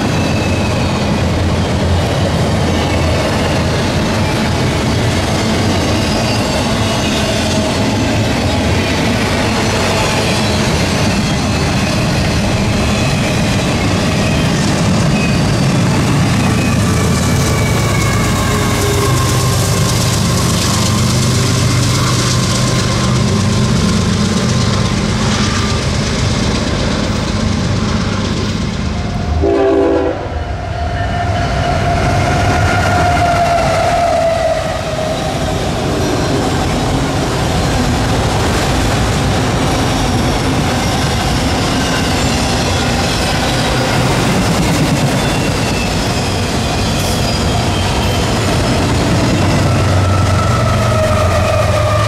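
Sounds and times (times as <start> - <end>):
freight cars rumbling: 0.0 - 29.5, 31.2 - 52.0
diesel locomotive engine: 0.0 - 52.0
train horn: 29.3 - 31.4.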